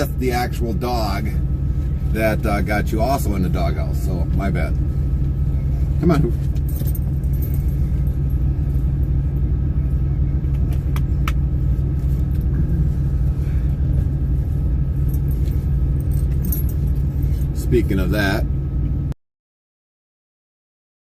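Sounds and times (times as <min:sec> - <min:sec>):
truck engine droning: 0:00.0 - 0:19.2.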